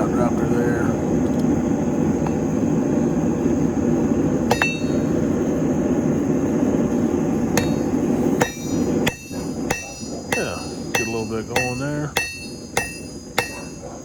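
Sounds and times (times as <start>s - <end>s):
forge roaring: 0.0s - 14.0s
steel clinking on steel: 4.5s - 5.1s, 7.6s - 14.0s
hammer blow on anvil: 4.5s - 5.2s, 7.5s - 13.8s.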